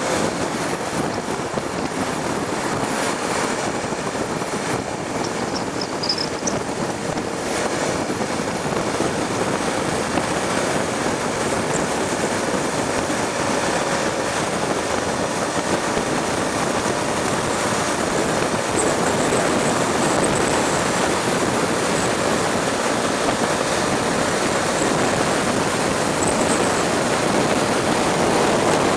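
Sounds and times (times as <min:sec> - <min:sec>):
motorcycle engine running: 0:00.0 - 0:28.9
wind and road noise: 0:00.0 - 0:28.9.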